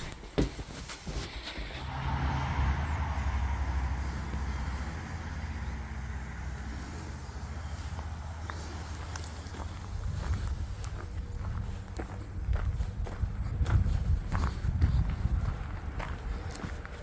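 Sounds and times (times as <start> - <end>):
vehicle engine rumble: 1.2 - 17.0.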